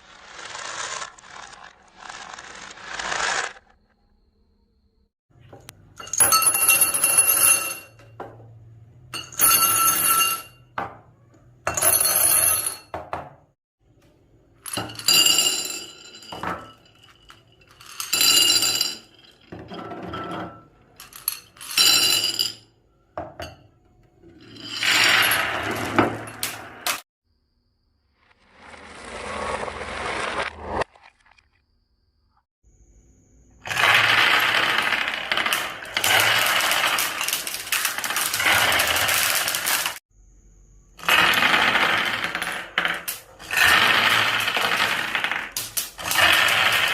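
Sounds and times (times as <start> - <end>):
marbles rolling down wooden run: 0.0 - 3.6, 14.6 - 19.4, 24.4 - 27.0, 33.6 - 40.0, 41.0 - 46.9.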